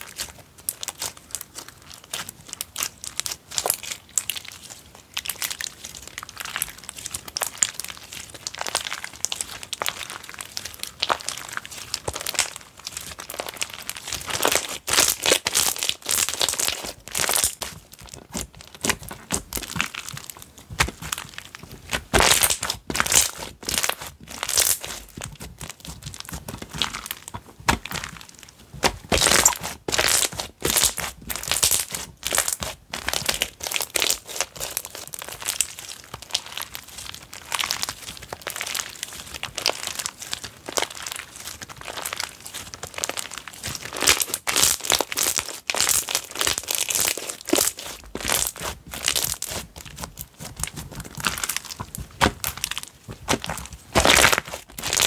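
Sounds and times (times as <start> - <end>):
slime crackling and popping: 0.0 - 55.0.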